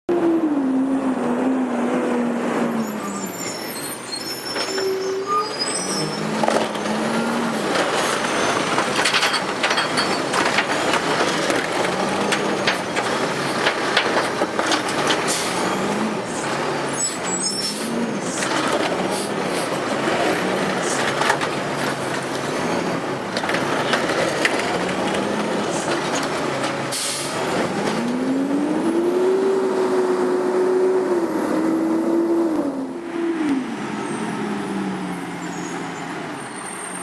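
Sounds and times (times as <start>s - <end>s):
garbage truck diesel engine revving: 4.9s - 36.8s
metal clanks: 7.6s - 15.5s.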